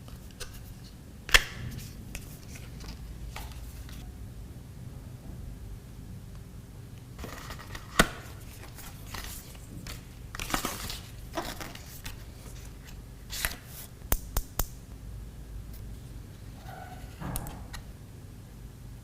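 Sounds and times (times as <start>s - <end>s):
packaging crinkling and rustling: 7.2s - 13.9s.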